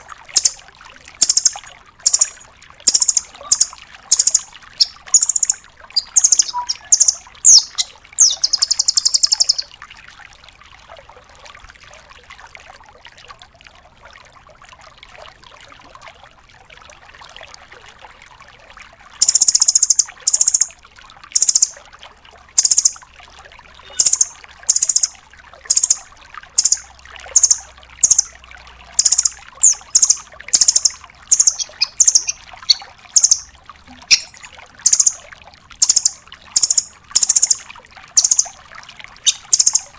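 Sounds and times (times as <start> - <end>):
bird calling sharp high notes: 0.0 - 0.6, 1.2 - 9.7, 23.8 - 26.0, 26.6 - 26.8, 27.4 - 28.3, 29.0 - 35.2, 35.8 - 37.6, 38.2 - 38.5, 39.2 - 39.9
bird rattling trill: 0.0 - 0.6, 1.2 - 9.6, 19.2 - 20.7, 21.4 - 21.7, 22.6 - 22.9, 23.9 - 25.1, 25.7 - 26.0, 26.6 - 26.8, 27.4 - 28.3, 29.0 - 33.5, 34.1 - 35.2, 35.8 - 37.6, 38.2 - 38.5, 39.2 - 39.9
faint background hiss: 0.0 - 9.8.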